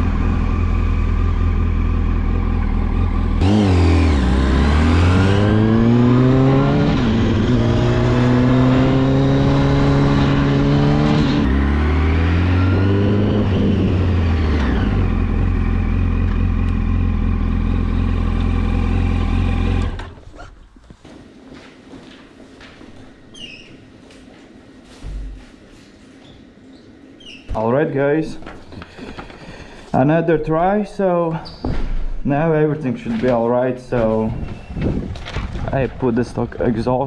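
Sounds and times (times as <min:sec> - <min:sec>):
motorcycle engine revving and idling: 0:00.0 - 0:20.5.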